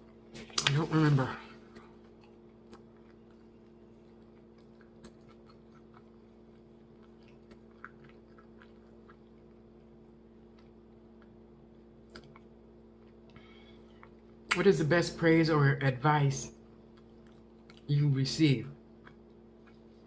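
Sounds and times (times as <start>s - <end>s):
steady low hum: 0.0s - 20.0s
chewing mouth clicks: 1.7s - 14.6s, 16.9s - 17.9s, 19.0s - 20.0s.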